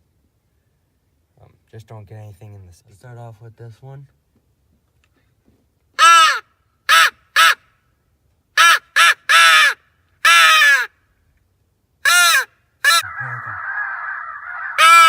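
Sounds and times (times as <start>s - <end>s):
crow call cawing: 6.0s - 7.6s, 8.6s - 11.0s, 12.1s - 15.0s.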